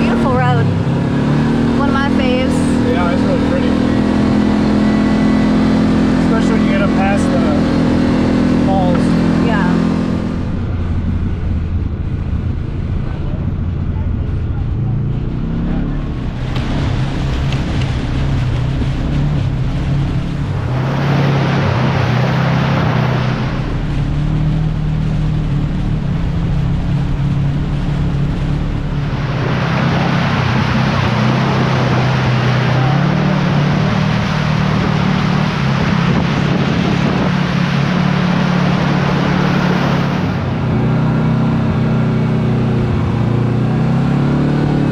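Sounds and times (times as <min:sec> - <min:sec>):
utility vehicle engine running: 0:00.0 - 0:44.9
rushing noise: 0:07.6 - 0:41.2.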